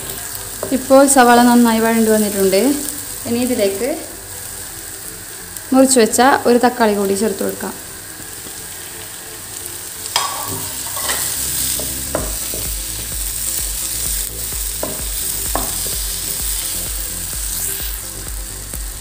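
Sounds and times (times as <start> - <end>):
onion frying in oil: 0.0 - 19.0
spoon knocking against pan: 10.2 - 11.2, 14.8 - 15.8.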